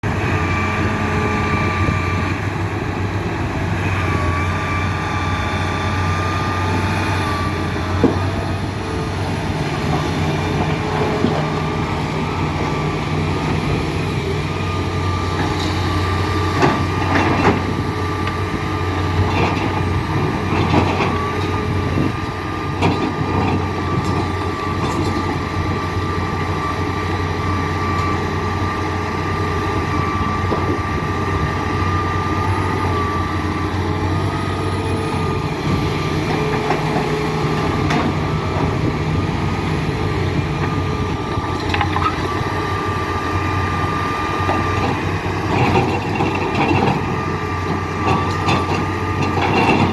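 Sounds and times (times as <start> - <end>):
excavator diesel engine: 0.0 - 49.9
metallic clanks and knocks: 41.5 - 42.3.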